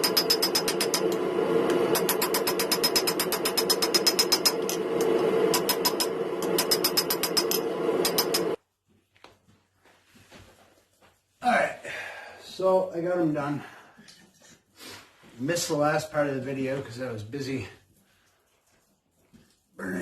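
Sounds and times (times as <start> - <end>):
steady mechanical hum: 0.0 - 14.4.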